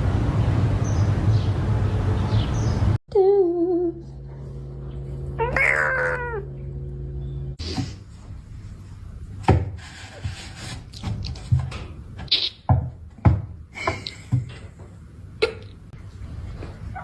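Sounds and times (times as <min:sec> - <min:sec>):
steady low hum: 0:03.1 - 0:10.2
cat meowing: 0:05.4 - 0:06.5.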